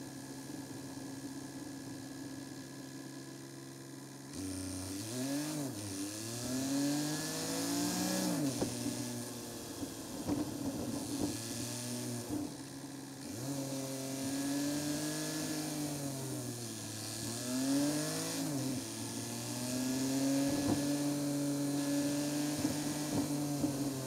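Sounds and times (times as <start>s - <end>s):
car engine accelerating: 4.3s - 12.6s, 13.2s - 24.0s.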